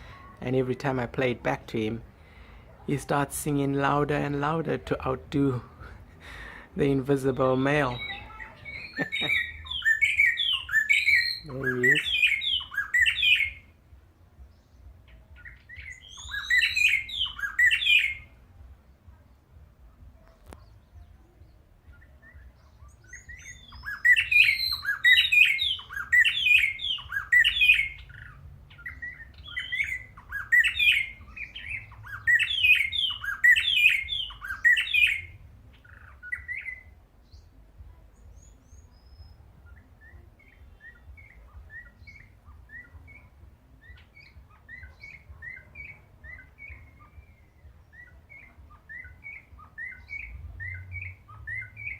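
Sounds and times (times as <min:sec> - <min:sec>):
bird singing: 0:00.0 - 0:51.9
recorded birdsong playback: 0:00.0 - 0:51.9.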